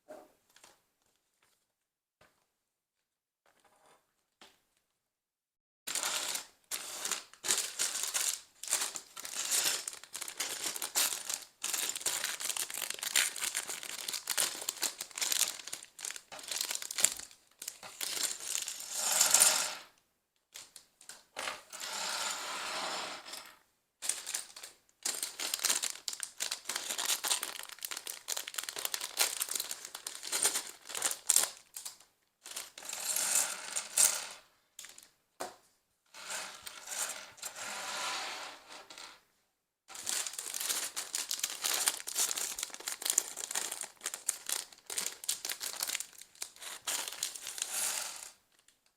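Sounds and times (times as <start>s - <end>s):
plastic toy bricks clattering: 39.9s - 48.4s.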